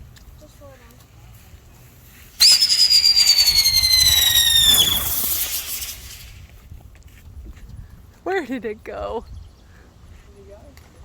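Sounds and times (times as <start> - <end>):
firework whistle: 2.4 - 6.5
rushing hiss: 2.4 - 6.6.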